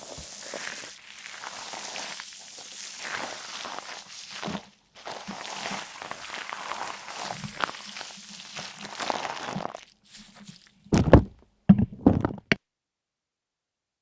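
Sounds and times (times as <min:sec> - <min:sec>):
rustling and crunching: 0:00.0 - 0:12.5
loud dull thumps: 0:10.9 - 0:12.6.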